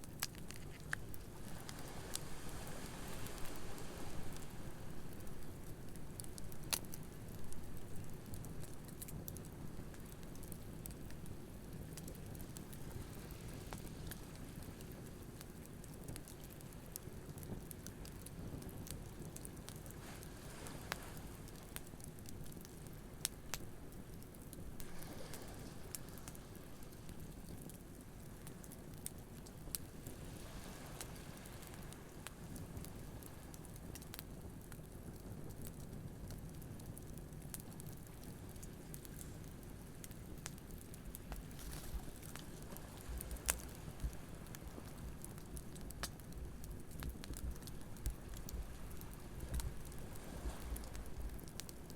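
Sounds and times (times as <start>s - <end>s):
campfire crackling and popping: 0.0s - 51.9s
ocean waves: 1.4s - 5.4s, 24.8s - 26.5s, 30.1s - 32.2s.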